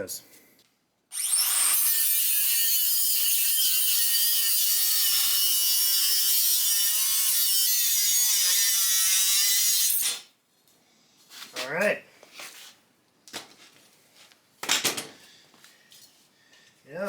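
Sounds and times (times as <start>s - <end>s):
power tool cutting steel: 1.1s - 10.3s.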